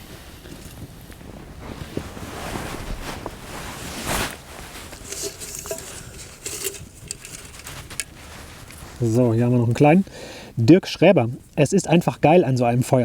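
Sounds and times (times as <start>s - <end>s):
campfire crackling: 0.1s - 10.5s
loud rustle: 0.2s - 9.1s.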